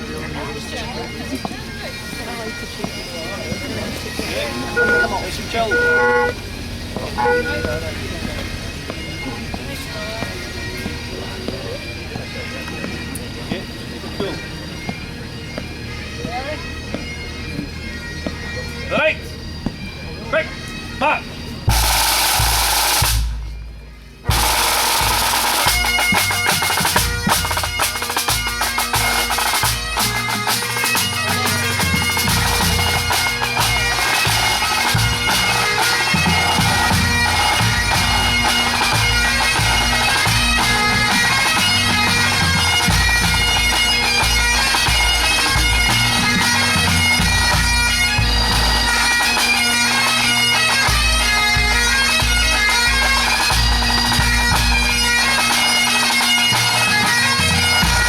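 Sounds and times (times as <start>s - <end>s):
bagpipes playing: 0.0s - 58.0s
drum corps drumming: 3.6s - 8.5s, 21.6s - 23.4s, 24.2s - 49.5s.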